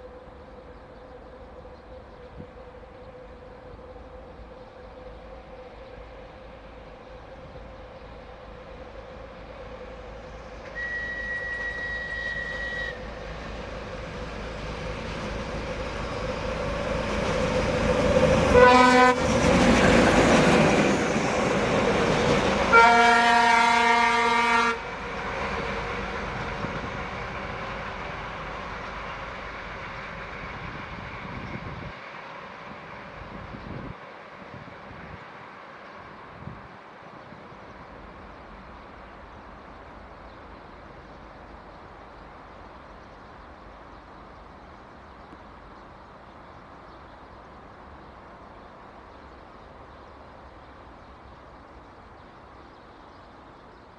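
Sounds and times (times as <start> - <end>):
diesel locomotive passing: 0.0 - 53.9
high steady whistle: 10.6 - 13.4
locomotive horn blasts: 10.7 - 13.2, 18.5 - 19.2, 22.7 - 24.9.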